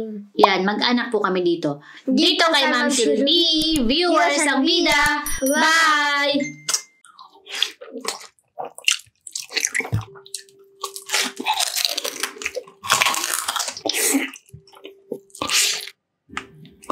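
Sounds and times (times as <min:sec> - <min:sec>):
crunching crispy food: 0:07.3 - 0:15.9.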